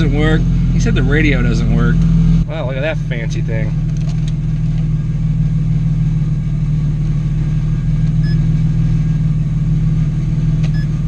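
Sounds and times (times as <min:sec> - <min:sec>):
car engine idling: 0:00.0 - 0:11.0
short electronic beep: 0:08.2 - 0:08.5.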